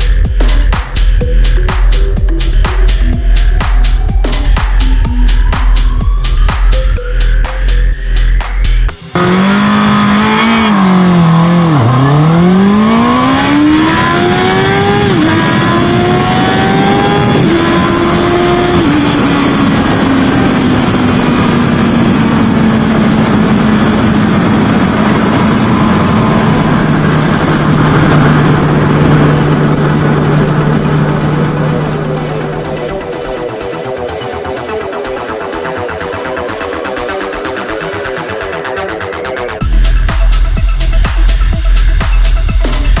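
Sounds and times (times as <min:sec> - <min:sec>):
motorcycle engine accelerating: 0:00.0 - 0:43.0
wind rush: 0:13.6 - 0:33.6.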